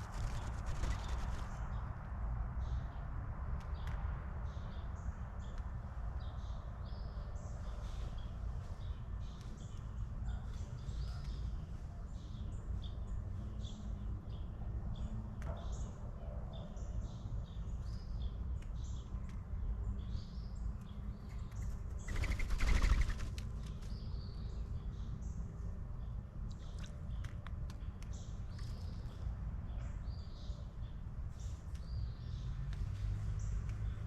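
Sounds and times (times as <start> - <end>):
songbirds chirping: 0.0 - 34.0.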